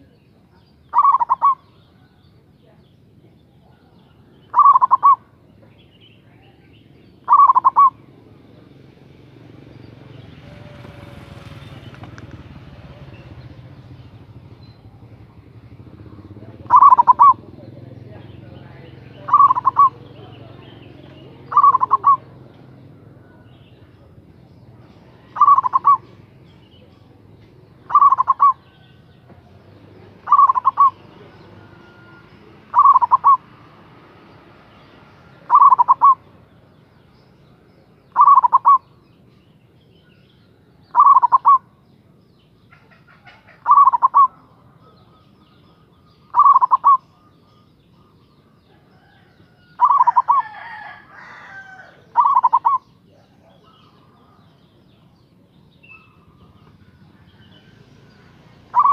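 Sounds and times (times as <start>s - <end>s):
rough bird call: 0.8s - 2.3s, 4.0s - 5.4s, 6.0s - 8.2s, 15.9s - 24.0s, 24.6s - 26.9s, 27.6s - 36.4s, 38.0s - 39.1s, 40.2s - 41.8s, 42.6s - 58.9s
dove cooing: 0.8s - 2.4s, 3.6s - 5.5s, 6.4s - 9.4s, 10.0s - 34.0s, 35.3s - 36.4s, 38.1s - 39.0s, 40.9s - 41.8s, 42.7s - 55.1s, 55.9s - 58.9s.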